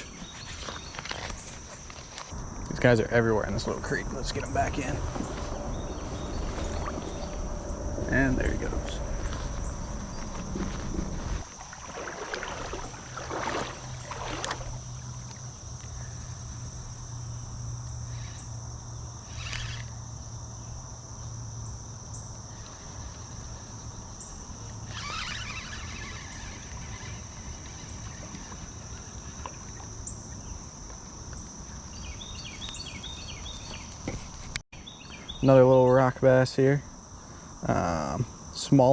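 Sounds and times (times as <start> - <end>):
insects trilling: 0.0 - 38.9
low hum: 2.4 - 11.5
brief rustling or splashing: 10.2 - 14.8.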